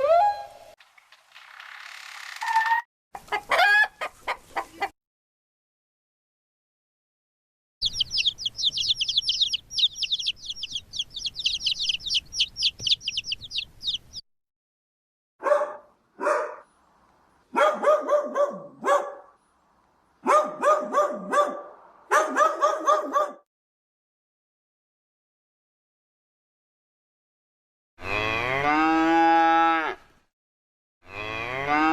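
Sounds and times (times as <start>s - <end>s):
high-pitched animal chirps: 7.8s - 14.2s.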